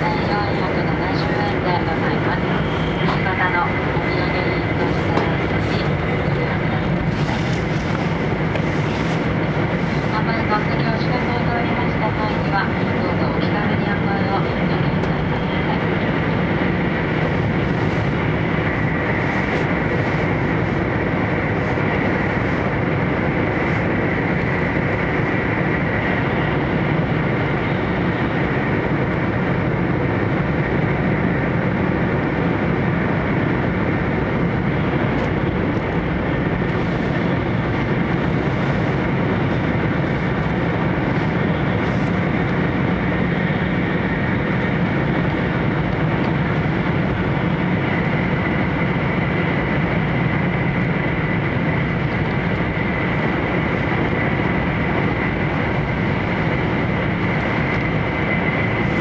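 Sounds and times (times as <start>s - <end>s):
train cabin low rumble: 0.0s - 59.0s.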